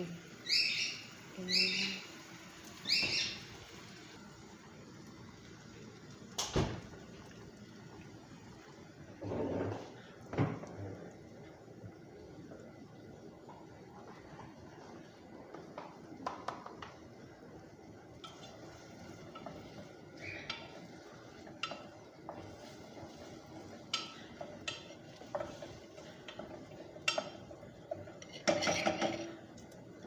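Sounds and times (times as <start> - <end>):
utensils clinking against dishes: 26.3 - 29.4.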